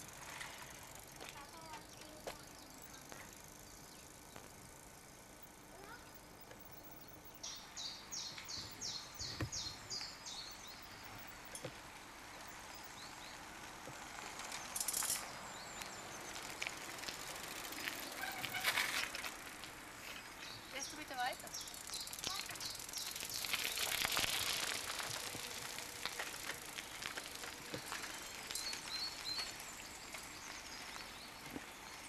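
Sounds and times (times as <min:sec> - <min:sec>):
steady outdoor hiss: 0:00.0 - 0:32.0
rustling and crunching: 0:16.3 - 0:20.6, 0:22.2 - 0:30.3.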